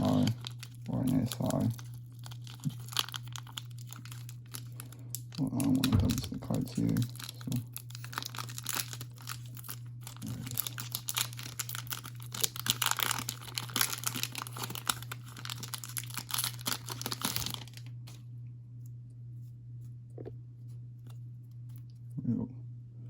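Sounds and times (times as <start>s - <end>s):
foil wrapper crinkling and tearing: 0.0s - 18.2s
steady low hum: 0.0s - 23.0s.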